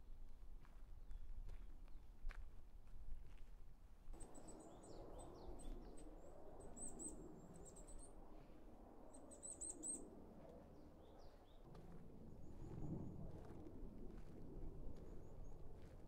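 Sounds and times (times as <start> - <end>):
small songbird chirping: 9.1 - 10.1.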